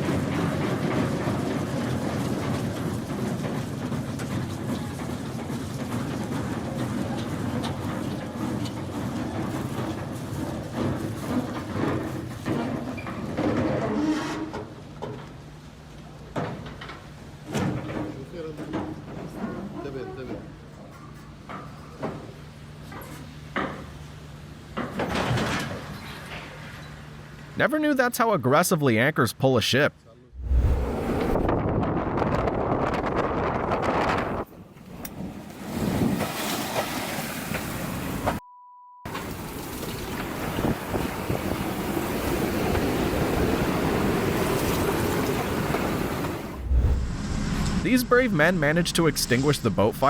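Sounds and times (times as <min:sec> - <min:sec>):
steady low hum: 0:30.3 - 0:31.6, 0:46.4 - 0:50.0
heavy low thump: 0:30.4 - 0:31.6, 0:46.6 - 0:49.8
wind buffeting microphone: 0:30.4 - 0:34.5
rushing water and waves: 0:34.6 - 0:38.4, 0:39.1 - 0:50.0
metallic bang: 0:46.4 - 0:50.0.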